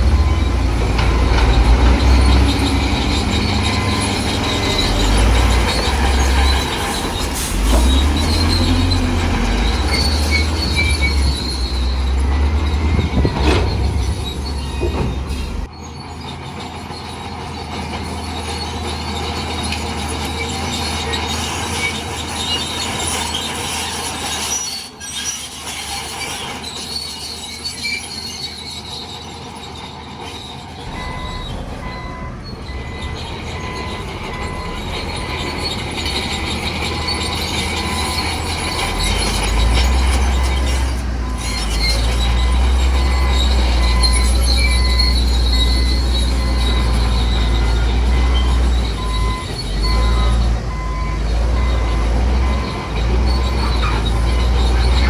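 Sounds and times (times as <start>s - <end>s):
diesel engine rumble: 0.0s - 24.4s, 25.5s - 55.0s
metallic track squealing: 0.0s - 55.0s.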